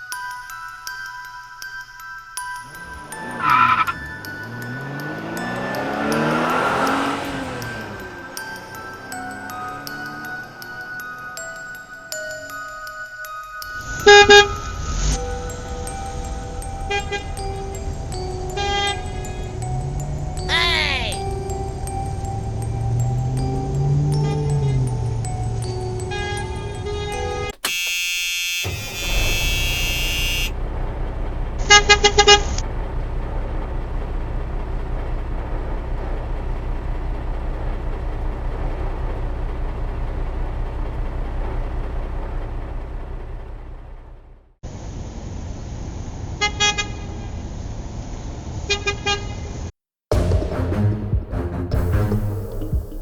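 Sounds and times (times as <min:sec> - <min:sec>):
low engine rumble: 0:02.6 - 0:11.6, 0:13.8 - 0:27.6, 0:28.7 - 0:44.8
horn honking short toots: 0:26.1 - 0:30.6.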